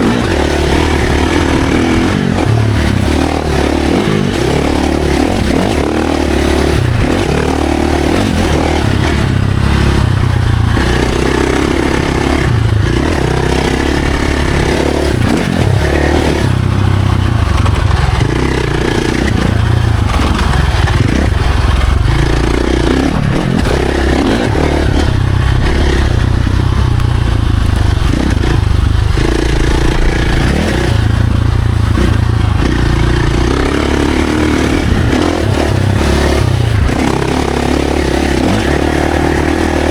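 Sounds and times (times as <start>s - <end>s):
dirt bike engine revving: 0.0s - 39.9s
wind rushing: 20.0s - 37.2s.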